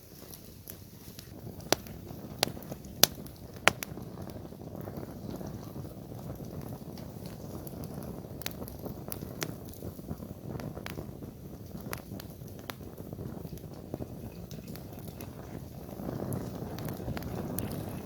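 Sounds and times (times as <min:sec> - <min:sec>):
low rush of flames: 0:00.0 - 0:18.0
wood fire crackling and popping: 0:00.0 - 0:18.0.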